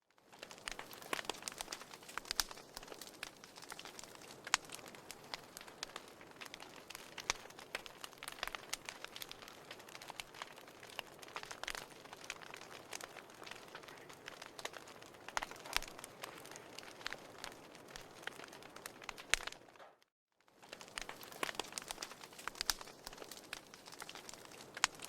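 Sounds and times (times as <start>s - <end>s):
firewood crackling and popping: 0.0s - 25.0s
soft hiss of flame: 0.2s - 19.6s.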